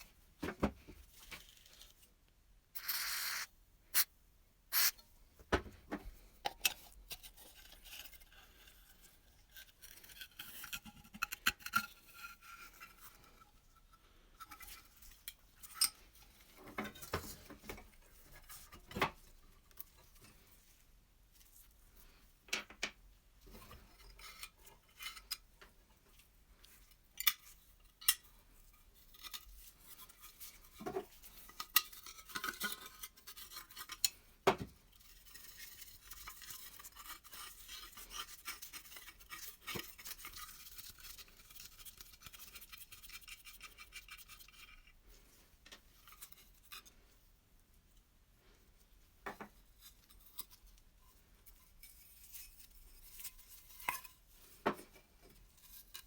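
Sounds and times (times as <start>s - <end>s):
dry scratching on metal: 2.8s - 4.1s.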